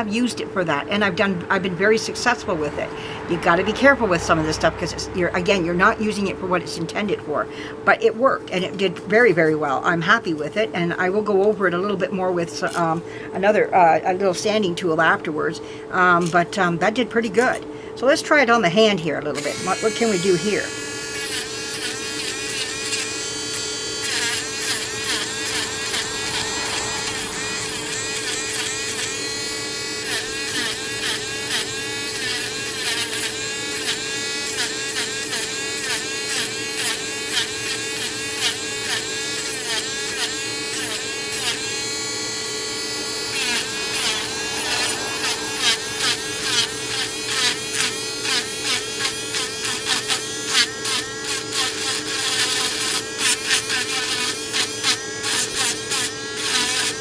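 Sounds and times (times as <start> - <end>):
rotary tool grinding: 19.4 - 57.0.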